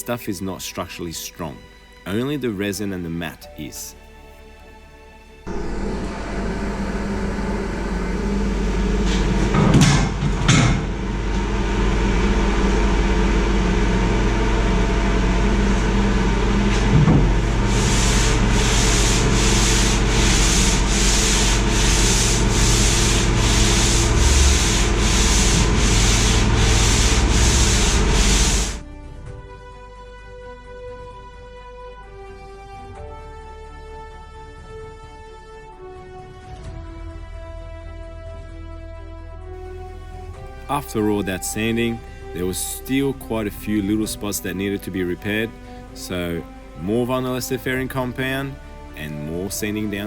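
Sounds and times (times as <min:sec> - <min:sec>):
low hum: 0:05.5 - 0:29.0
sanding boat hull: 0:11.6 - 0:28.8.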